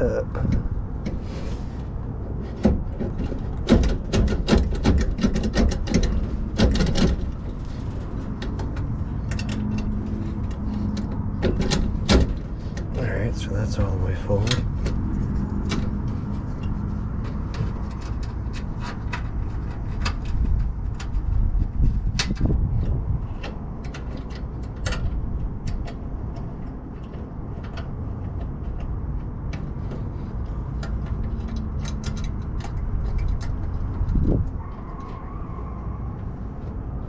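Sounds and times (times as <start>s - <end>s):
steady low rumble: 0.0s - 34.7s
metallic clicks and knocks of tools: 3.1s - 13.0s, 22.1s - 35.2s.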